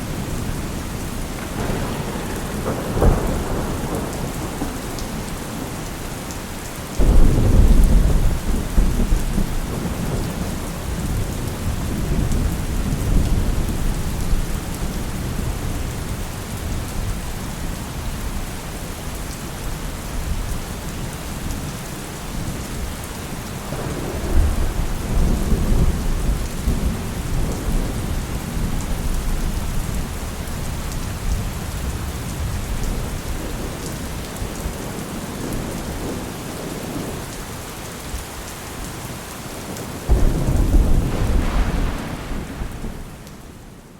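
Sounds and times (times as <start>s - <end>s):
thunder rumbling: 0.0s - 17.3s, 23.7s - 37.2s, 40.1s - 43.9s
steady rain: 0.0s - 43.9s.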